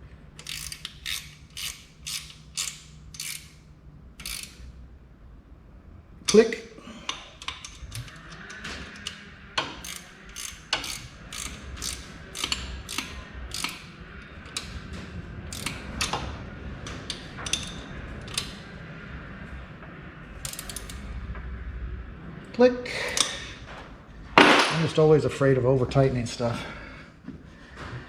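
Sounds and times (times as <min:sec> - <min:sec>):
socket wrench ratcheting: 0:00.4 - 0:04.6, 0:07.1 - 0:13.8, 0:15.5 - 0:16.2.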